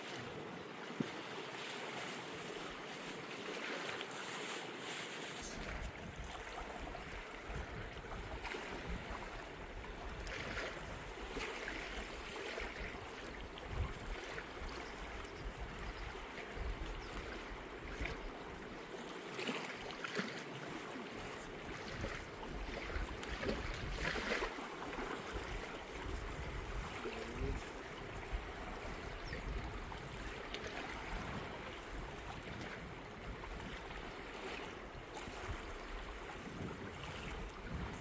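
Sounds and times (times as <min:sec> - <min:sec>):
wind buffeting microphone: 0:05.4 - 0:11.3, 0:12.8 - 0:18.3, 0:21.7 - 0:24.3, 0:25.3 - 0:34.2, 0:35.2 - 0:38.0.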